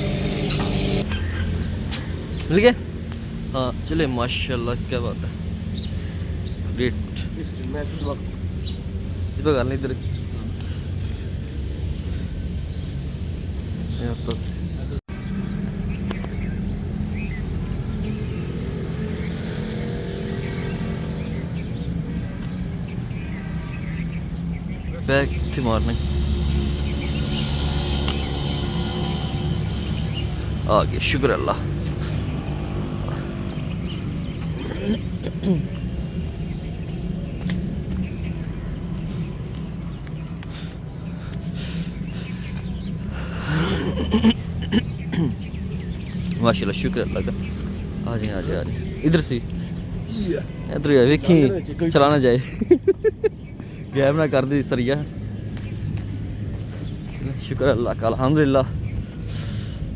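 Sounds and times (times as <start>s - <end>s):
low engine hum: 0.0s - 2.3s.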